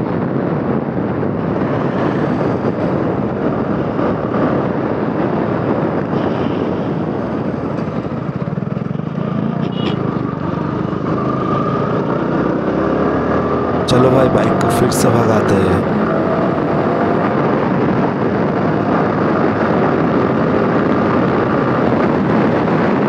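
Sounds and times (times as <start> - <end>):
riding wind noise: 0.0 - 23.0
motorcycle engine: 7.6 - 14.7, 15.6 - 17.3.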